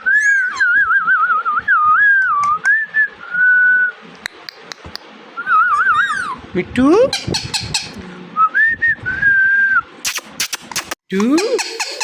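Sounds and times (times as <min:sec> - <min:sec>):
parrot whistling: 0:00.0 - 0:02.7, 0:05.4 - 0:06.4, 0:07.1 - 0:08.0.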